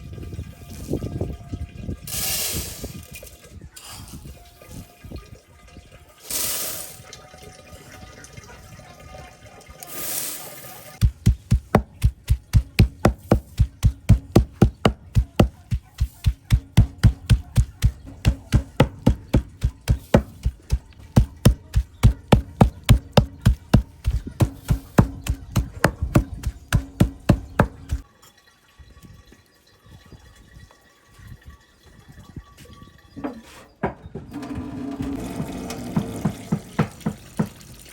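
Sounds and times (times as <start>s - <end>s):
knife chopping food: 11.0s - 28.0s.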